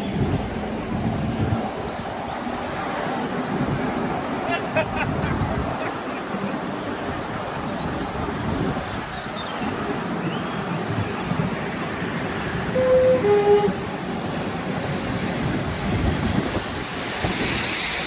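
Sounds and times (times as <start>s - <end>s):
wind on microphone: 0.0s - 6.1s, 6.7s - 18.0s
miniature train rumbling: 0.0s - 18.0s
two-note train horn: 12.7s - 14.0s.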